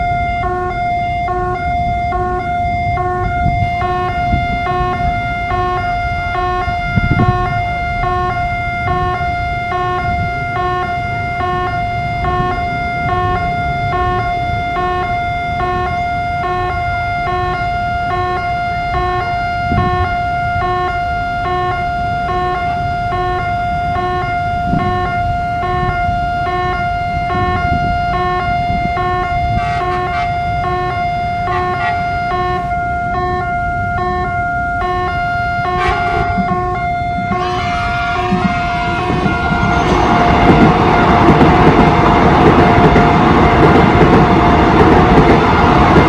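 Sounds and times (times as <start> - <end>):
level crossing alarm: 0.0 - 46.0
traffic rumble: 0.0 - 46.0.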